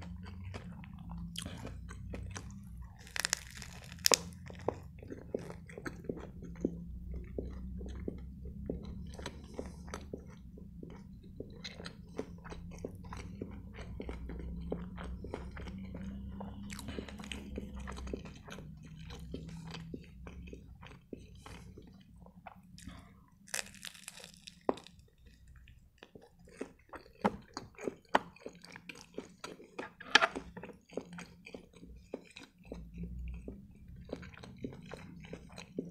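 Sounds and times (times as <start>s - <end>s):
person chewing: 0.0s - 35.9s
crackly bite into wrap: 2.4s - 4.4s, 23.5s - 25.0s.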